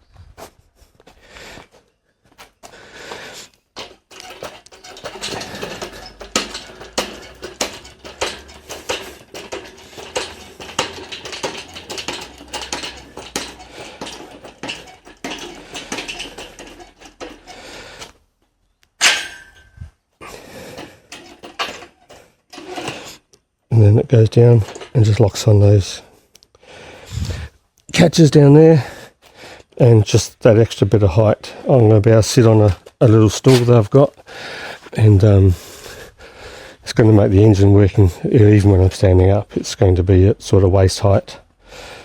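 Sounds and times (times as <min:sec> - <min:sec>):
low welder hum: 0:03.8 - 0:18.2
metallic clank with ring: 0:19.0 - 0:19.8.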